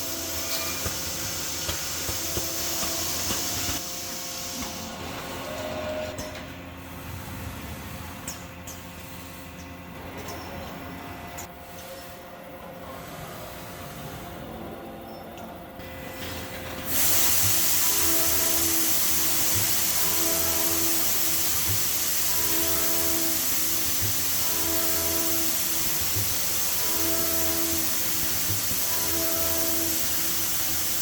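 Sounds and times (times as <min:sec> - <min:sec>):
milling machine hiss: 0:00.0 - 0:07.0, 0:15.8 - 0:31.0.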